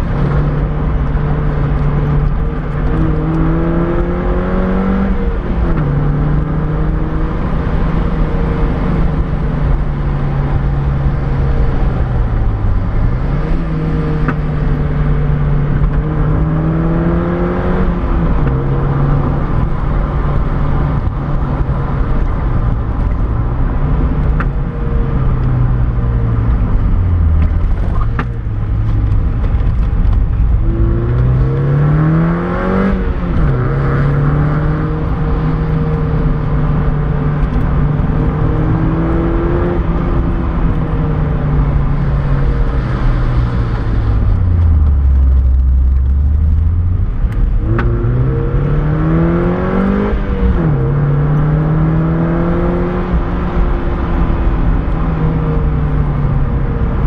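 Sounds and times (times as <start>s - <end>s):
car engine running: 0.0s - 57.0s
road and wind noise: 0.0s - 57.0s.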